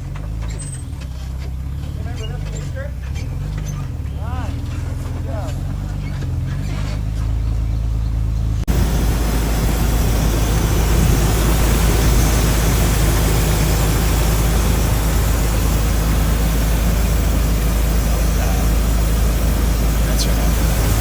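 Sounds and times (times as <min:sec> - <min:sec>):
truck engine running: 0:00.0 - 0:21.0
loud rushing noise: 0:08.7 - 0:21.0.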